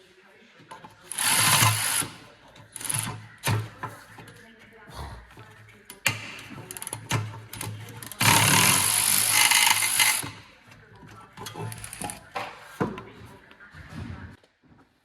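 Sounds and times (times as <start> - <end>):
hand tools clicking and knocking: 0.6 - 4.4, 5.8 - 13.4
power tool running: 1.1 - 2.2, 8.2 - 10.4.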